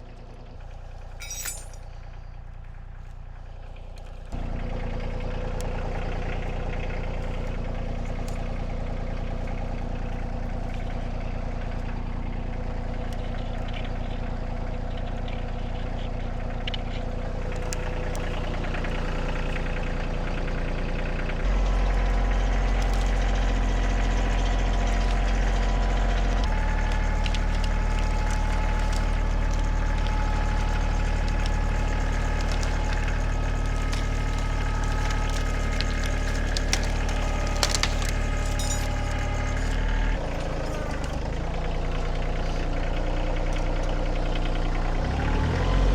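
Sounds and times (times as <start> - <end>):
engine running: 0.0 - 45.9.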